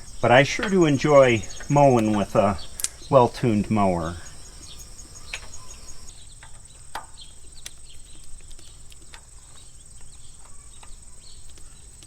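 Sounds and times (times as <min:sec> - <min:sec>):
sharp clicks: 0:00.0 - 0:09.2
insects buzzing: 0:00.0 - 0:12.0
pulsing insect chirp: 0:00.0 - 0:12.0.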